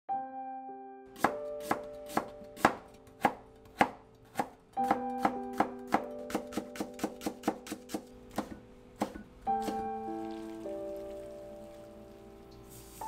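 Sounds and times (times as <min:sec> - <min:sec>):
soft background music: 0:00.1 - 0:13.0
knife chopping on cutting board: 0:01.2 - 0:09.9.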